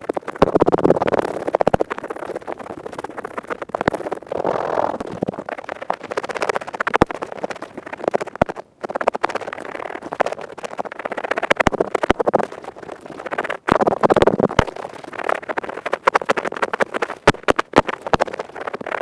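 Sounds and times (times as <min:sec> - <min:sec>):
earpick scraping inside ear: 0:04.0 - 0:05.4.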